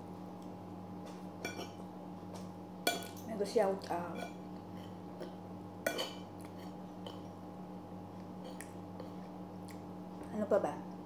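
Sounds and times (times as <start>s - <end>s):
low electrical hum: 0.0s - 11.0s
quiet chewing: 6.3s - 7.4s, 8.1s - 10.3s.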